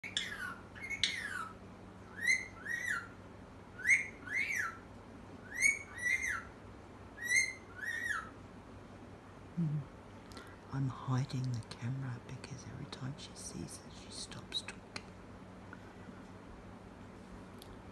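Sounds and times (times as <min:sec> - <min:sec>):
parrot whistling: 0:00.0 - 0:03.2, 0:03.8 - 0:04.8, 0:05.4 - 0:06.5, 0:07.2 - 0:08.3.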